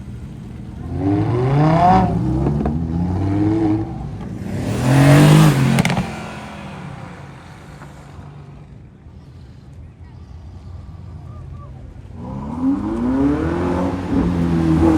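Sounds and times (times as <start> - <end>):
car engine revving: 0.0 - 8.9, 12.0 - 14.9
exhaust cracks: 0.0 - 9.1.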